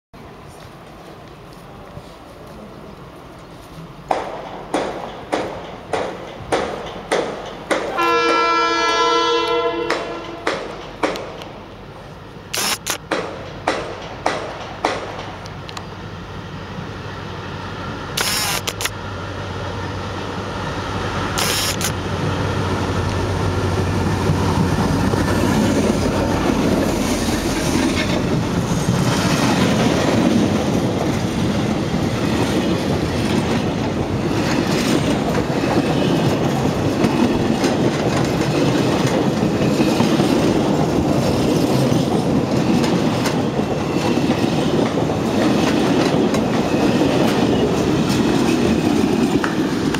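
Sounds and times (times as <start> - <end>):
diesel locomotive engine hum: 0.2 - 49.9
train wheels clacking over rail joints: 4.0 - 9.0, 9.8 - 11.8, 12.6 - 15.8, 24.0 - 49.9.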